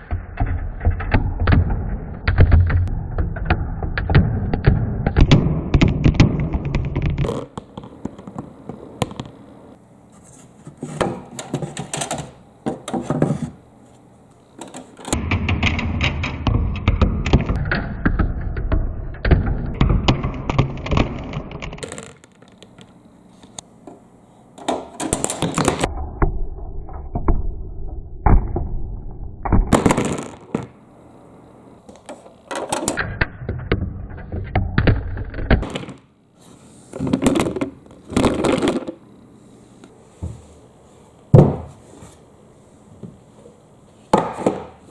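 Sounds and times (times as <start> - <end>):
marbles rolling and clattering: 20.0 - 22.8.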